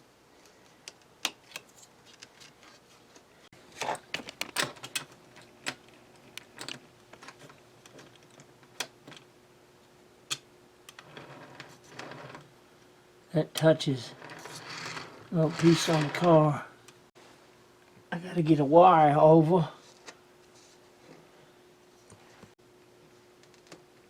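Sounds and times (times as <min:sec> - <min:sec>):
small parts clicking and clacking: 0:00.4 - 0:02.7, 0:03.8 - 0:09.3, 0:13.6 - 0:16.5.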